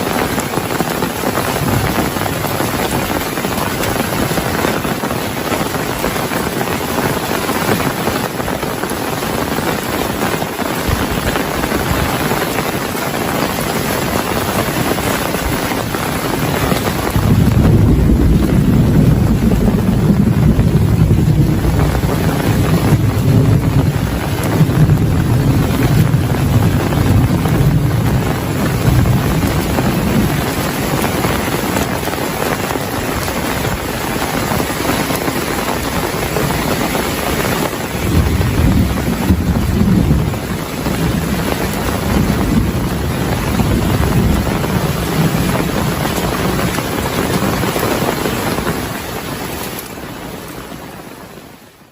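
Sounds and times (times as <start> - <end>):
heavy rain falling: 0.0 - 51.9
low rolling thunder: 9.5 - 49.0.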